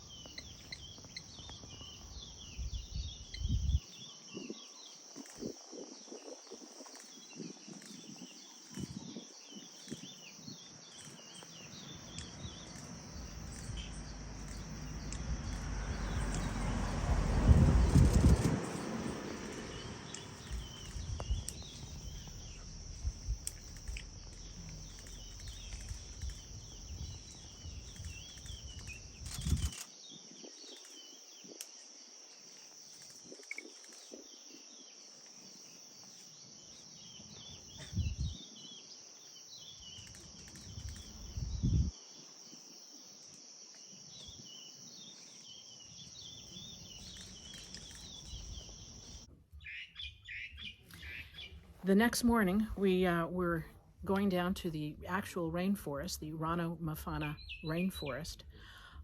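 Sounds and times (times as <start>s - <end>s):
small chirping calls: 0.0s - 16.8s, 17.8s - 51.6s
insect drone: 0.0s - 49.3s
low rumble: 13.1s - 29.8s, 37.9s - 38.4s, 40.6s - 41.9s.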